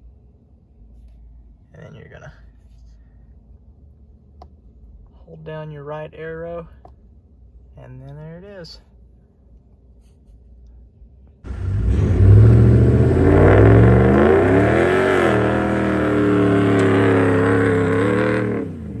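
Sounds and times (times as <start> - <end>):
car engine starting and running: 11.4 - 19.0.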